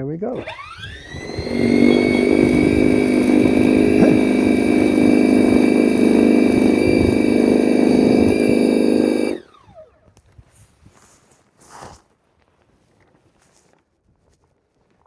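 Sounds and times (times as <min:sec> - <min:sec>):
electric motor whine: 0:00.4 - 0:09.9.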